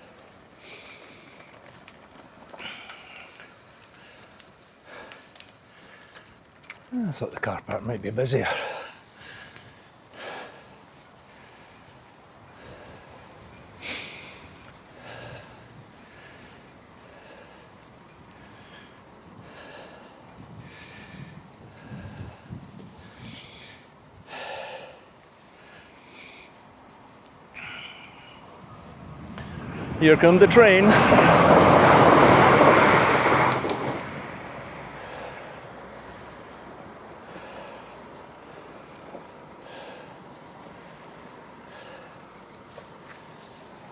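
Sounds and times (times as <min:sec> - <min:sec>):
person breathing: 0:02.6 - 0:06.3, 0:08.5 - 0:29.9, 0:34.9 - 0:43.6
train passing with rushing rumble: 0:27.9 - 0:43.9.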